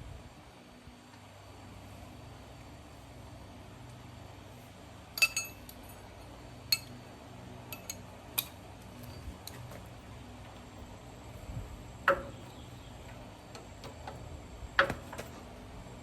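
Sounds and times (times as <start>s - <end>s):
metal tools clinking: 5.2s - 7.0s, 7.7s - 9.8s.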